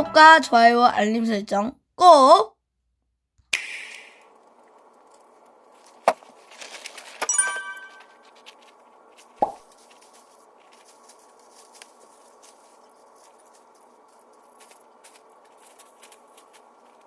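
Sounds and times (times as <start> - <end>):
bright chime: 7.3 - 8.2
short pop: 9.4 - 9.6.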